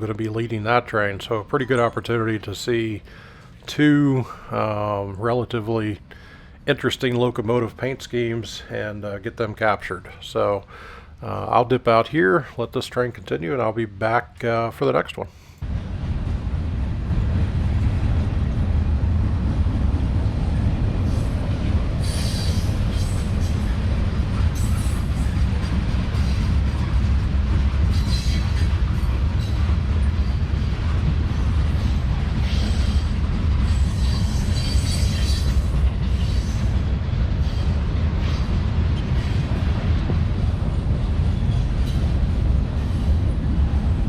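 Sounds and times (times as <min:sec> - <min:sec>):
freight cars rumbling past: 0:15.6 - 0:44.0.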